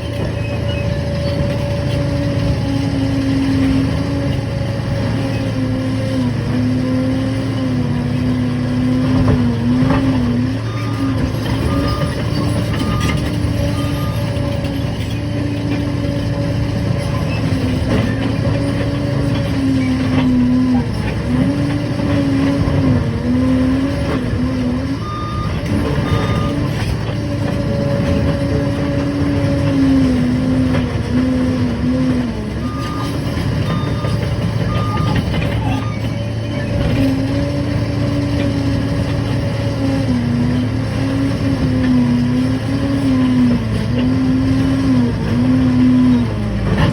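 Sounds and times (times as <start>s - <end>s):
bulldozer diesel engine: 0.0s - 46.9s
reversing alarm beeps: 10.6s - 14.5s, 25.0s - 26.8s, 32.6s - 36.8s.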